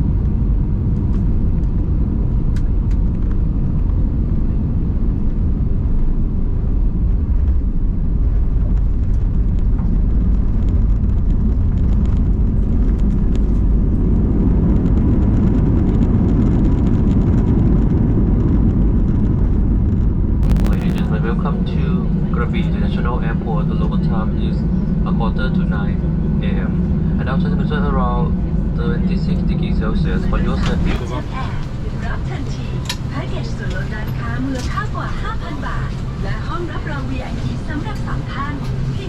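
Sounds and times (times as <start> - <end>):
aircraft cabin engine rumble: 0.0 - 39.0.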